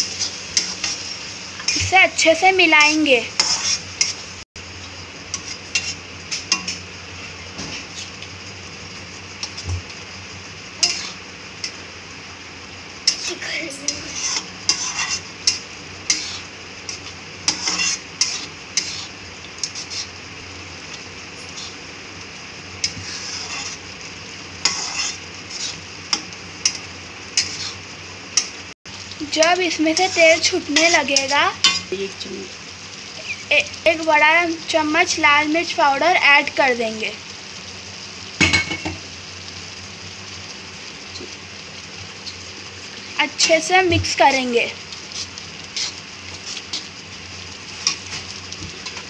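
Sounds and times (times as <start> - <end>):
masala sizzling in a pan: 0.0 - 49.0
spatula scraping a metal pan: 3.4 - 4.2, 5.3 - 6.8, 10.8 - 11.2, 13.9 - 20.2, 22.8 - 23.8, 24.6 - 25.8, 27.4 - 27.8, 45.1 - 46.9.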